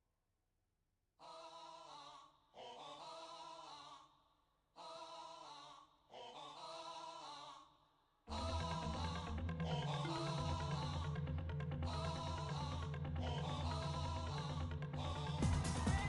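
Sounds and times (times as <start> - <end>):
lone singing voice: 8.3 - 16.0.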